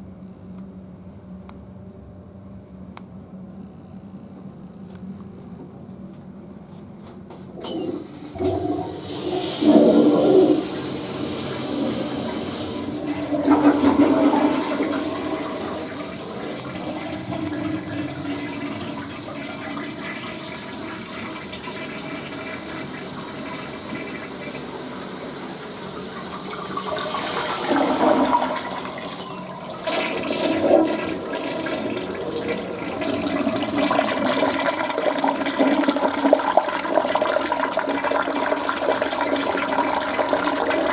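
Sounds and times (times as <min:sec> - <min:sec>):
toilet flushing: 0:07.6 - 0:40.9.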